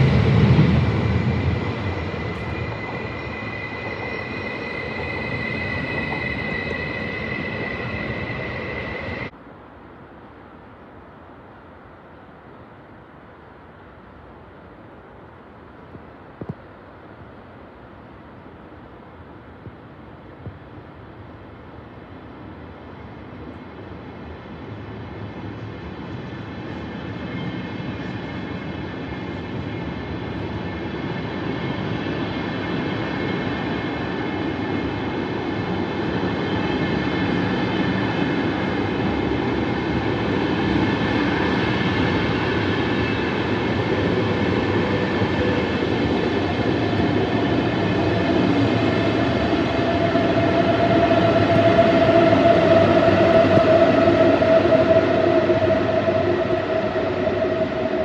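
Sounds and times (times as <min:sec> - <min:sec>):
train wheels rolling on rails: 0:00.0 - 0:09.3, 0:23.4 - 0:58.0.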